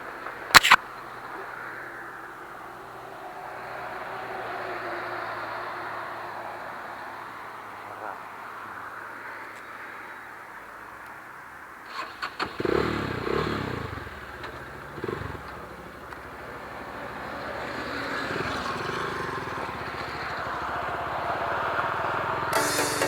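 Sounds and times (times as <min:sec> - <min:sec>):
clicks: 0:00.2 - 0:00.8
motorcycle engine revving: 0:11.9 - 0:23.0.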